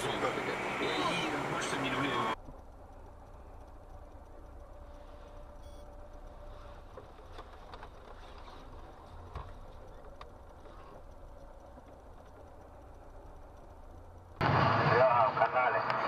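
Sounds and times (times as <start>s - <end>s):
car engine rumble from inside: 0.0s - 16.0s
faint clicks and knocks: 2.4s - 14.4s.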